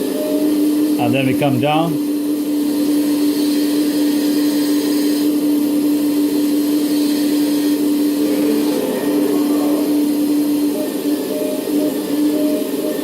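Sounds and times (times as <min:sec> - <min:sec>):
simulated excavator hum: 0:04.8 - 0:12.8.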